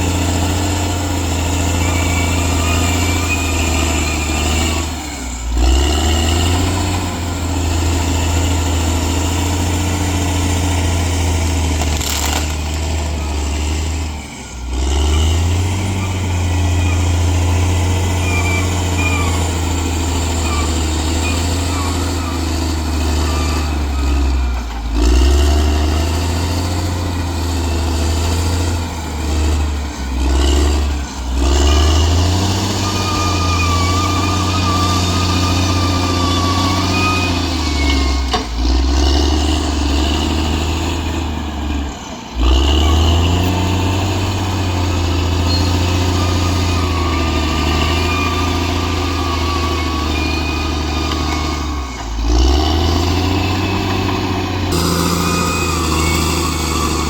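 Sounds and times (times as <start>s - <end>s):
bulldozer diesel engine running: 0.0s - 57.0s
thin high whine: 54.7s - 57.0s.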